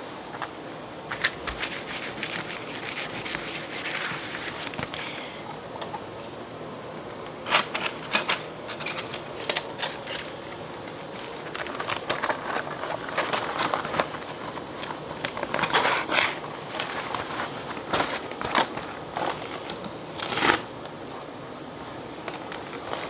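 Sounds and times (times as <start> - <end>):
packing material rustling: 7.4 - 20.8.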